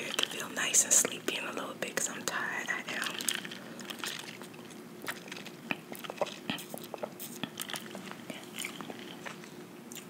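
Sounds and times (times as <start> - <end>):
chewing with wet smacks: 2.9 - 10.0
small mouth clicks: 5.0 - 10.0.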